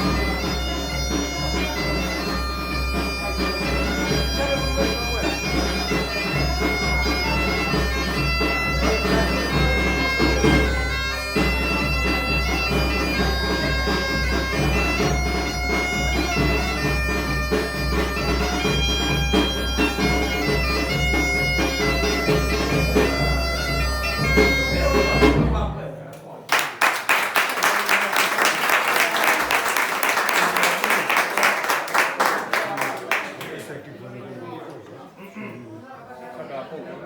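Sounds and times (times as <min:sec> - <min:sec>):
bagpipe playing a tune: 0:00.0 - 0:25.6
drum beating time: 0:00.0 - 0:32.6.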